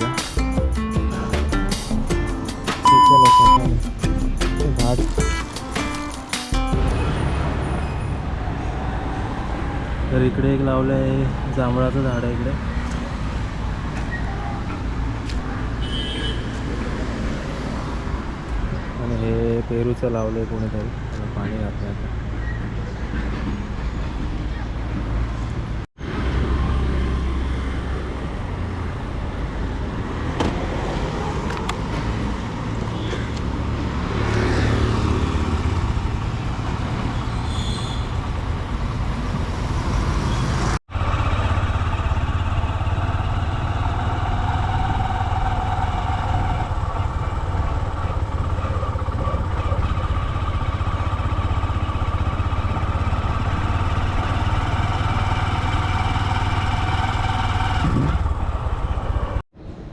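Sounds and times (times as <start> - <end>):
road traffic: 0.0 - 4.0, 5.1 - 59.9
vehicle passing by: 23.2 - 37.5, 38.2 - 59.4
vehicle engine running: 40.9 - 59.4.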